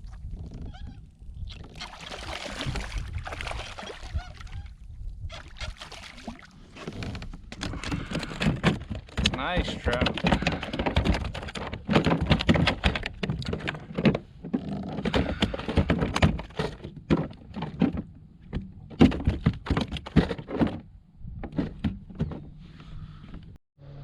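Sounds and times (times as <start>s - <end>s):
thunks and knocks on plastic kayak: 6.7s - 22.6s.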